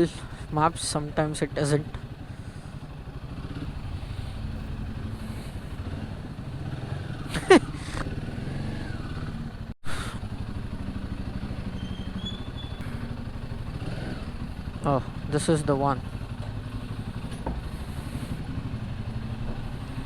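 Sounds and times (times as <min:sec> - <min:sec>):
motorbike engine rumbling: 0:00.0 - 0:20.0
short falling squeal: 0:11.6 - 0:13.0.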